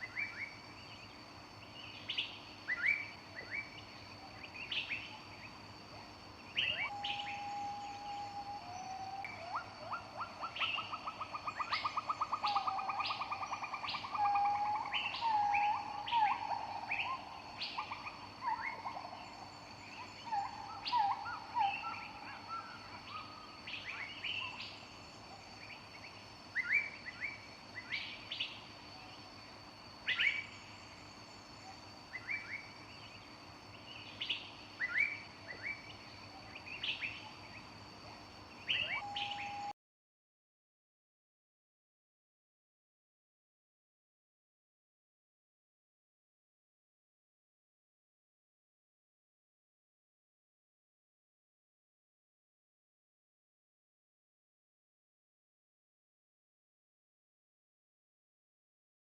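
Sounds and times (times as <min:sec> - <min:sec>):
whistled bird notes: 0:06.5 - 0:24.8, 0:38.6 - 0:39.8
bird trill: 0:06.6 - 0:24.7, 0:38.6 - 0:39.7
birds chirping: 0:38.6 - 0:39.7.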